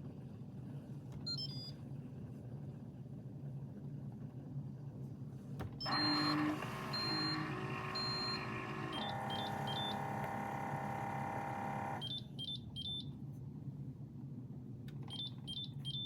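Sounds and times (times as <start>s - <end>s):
coffee maker pump humming: 5.8s - 12.1s
coffee maker beeping: 5.8s - 12.2s.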